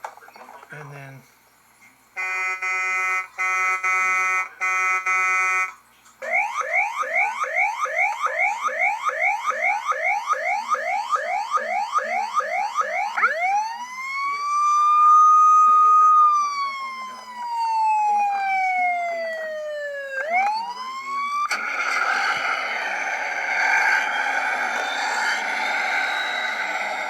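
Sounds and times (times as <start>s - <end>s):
electronic horn blasts: 2.2s - 5.8s
wailing siren: 2.2s - 27.0s
yelping siren: 2.2s - 27.0s.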